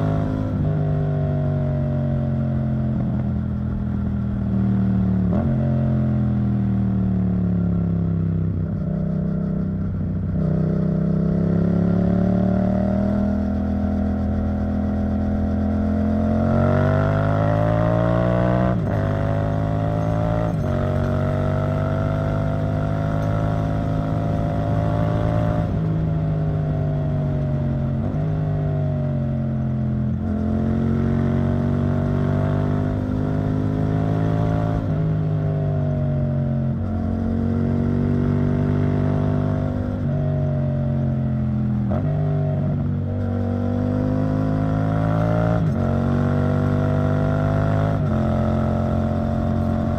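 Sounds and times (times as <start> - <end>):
motorcycle engine shifting gears: 7.8 - 49.9.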